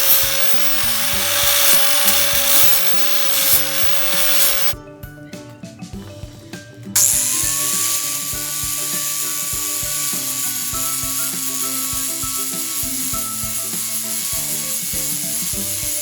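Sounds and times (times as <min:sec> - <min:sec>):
power tool grinding metal: 0:00.0 - 0:04.8, 0:07.0 - 0:16.0
background music: 0:00.0 - 0:16.0.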